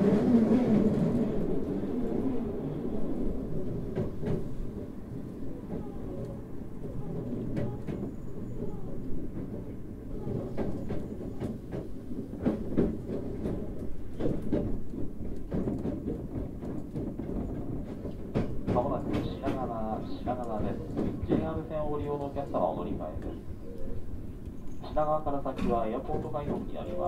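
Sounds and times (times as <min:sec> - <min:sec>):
wheels rumbling on rail: 0:00.0 - 0:27.0
wheel clicks over rail joints: 0:03.6 - 0:23.4, 0:24.4 - 0:27.0.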